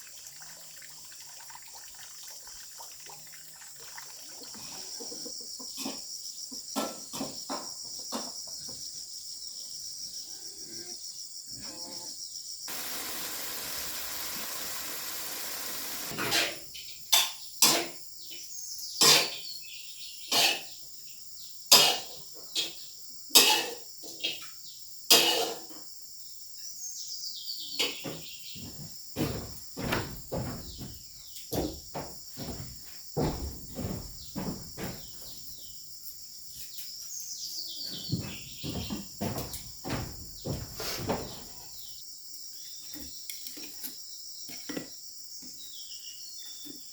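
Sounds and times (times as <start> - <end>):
crickets chirping: 2.2 - 46.9
rushing hiss: 12.7 - 16.2.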